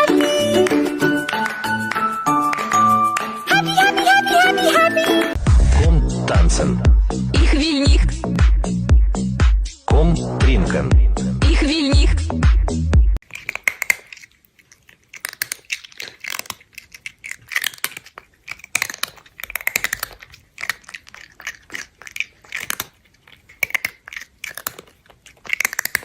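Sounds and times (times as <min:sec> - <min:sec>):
electronic dance music: 0:00.0 - 0:13.1
animal chewing crunchy food: 0:13.2 - 0:26.0.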